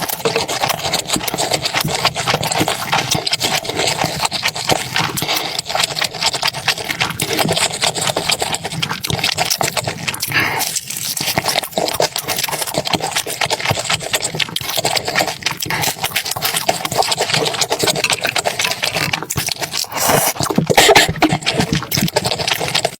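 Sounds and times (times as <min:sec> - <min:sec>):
wet chewing: 0:00.0 - 0:22.9.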